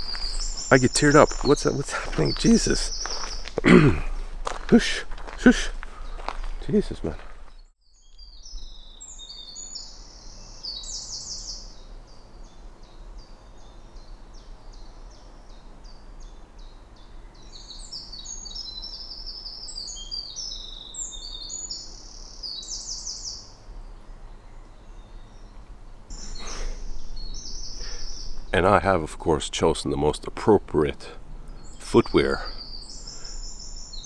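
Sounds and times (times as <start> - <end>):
wren singing rapid trills: 0.0 - 7.4, 8.3 - 11.9, 17.0 - 23.6, 24.5 - 34.0.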